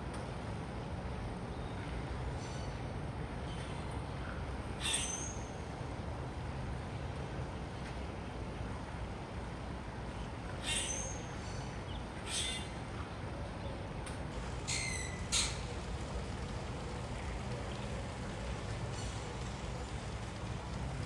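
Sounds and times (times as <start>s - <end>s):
steady low rumble: 14.3s - 21.0s
short bird calls: 14.4s - 15.9s.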